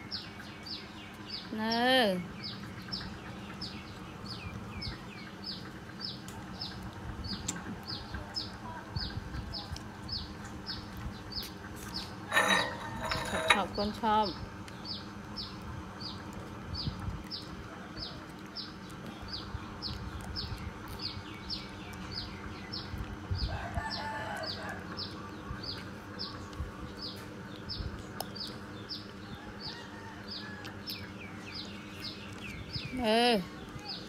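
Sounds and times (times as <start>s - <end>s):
small bird chirping: 24.4s - 34.0s.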